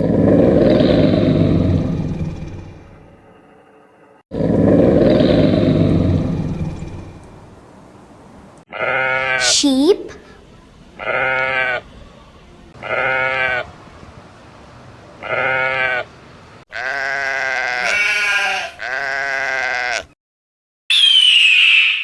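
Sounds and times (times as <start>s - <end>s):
sheep bleating: 8.7s - 9.6s, 11.0s - 11.9s, 12.8s - 13.7s, 15.2s - 16.1s, 16.7s - 20.2s.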